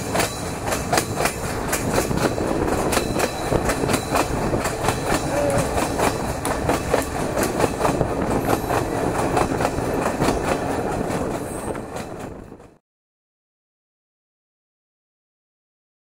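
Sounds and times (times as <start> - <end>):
train rumble: 0.0 - 12.8
train wheels clicking over rails: 0.0 - 12.8.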